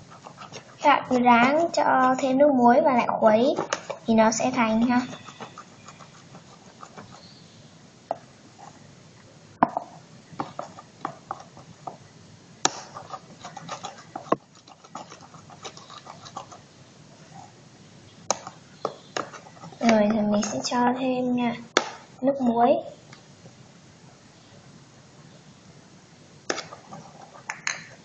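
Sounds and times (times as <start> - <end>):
chopsticks stirring wet slime: 0.0 - 7.4, 12.7 - 17.6, 18.3 - 20.8.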